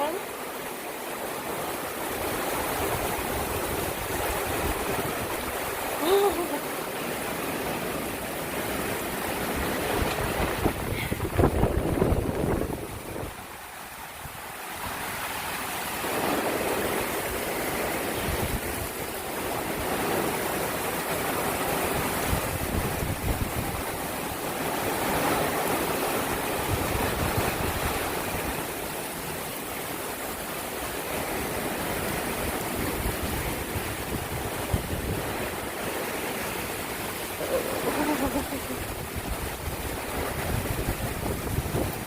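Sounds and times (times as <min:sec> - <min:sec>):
gusty wind buffeting microphone: 0:09.4 - 0:13.6, 0:21.8 - 0:24.0, 0:32.5 - 0:42.0.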